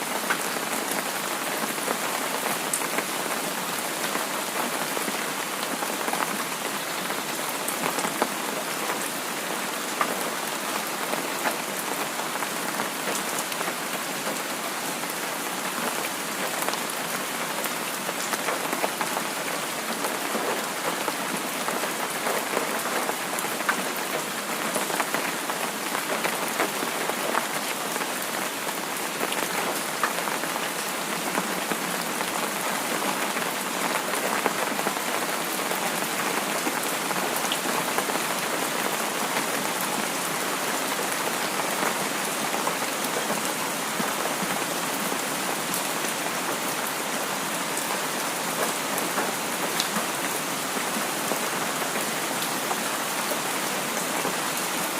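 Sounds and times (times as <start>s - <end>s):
rain pattering on a surface: 0.0s - 54.9s.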